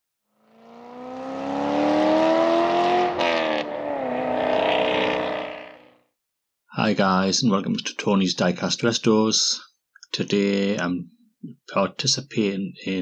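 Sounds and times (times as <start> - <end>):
race car engine revving: 0.4 - 5.9.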